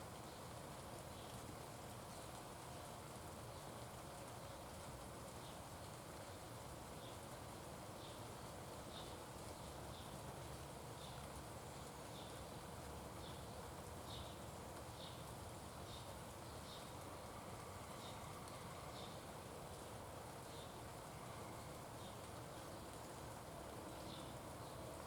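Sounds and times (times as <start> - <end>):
faint steady hiss: 0.0 - 25.0.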